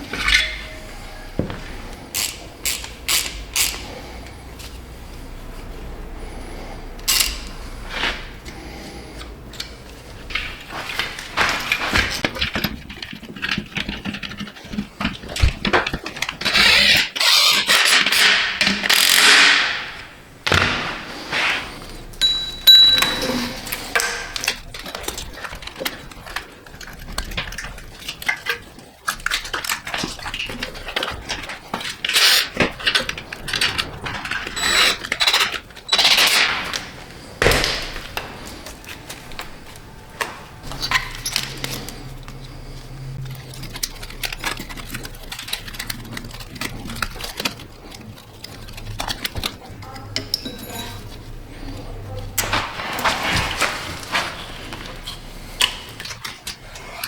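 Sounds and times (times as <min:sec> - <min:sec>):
tools clicking and clanking: 0:01.4 - 0:04.7, 0:07.0 - 0:21.0, 0:22.1 - 0:57.0.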